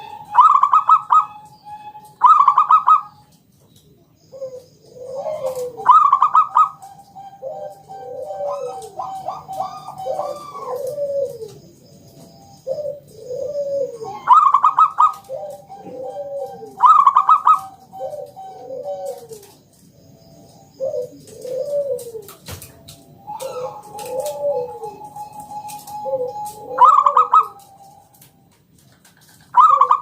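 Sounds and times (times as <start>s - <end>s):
dove cooing: 0.0s - 30.0s.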